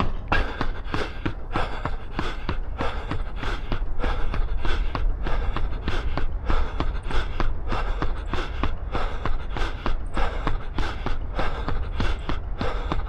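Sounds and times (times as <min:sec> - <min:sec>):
hard rhythmic breathing: 0:00.0 - 0:13.0
low wind rumble on microphone: 0:00.0 - 0:13.0.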